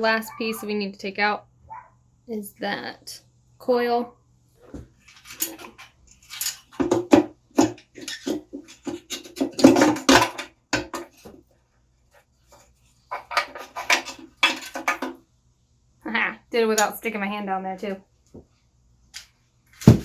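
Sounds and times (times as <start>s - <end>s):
metal clanks and scrapes: 5.0s - 11.4s, 12.5s - 15.2s.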